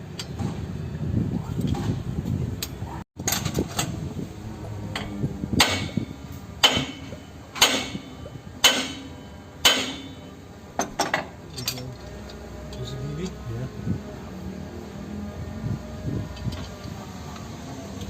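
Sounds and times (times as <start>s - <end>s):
hammer striking metal: 4.9s - 11.3s.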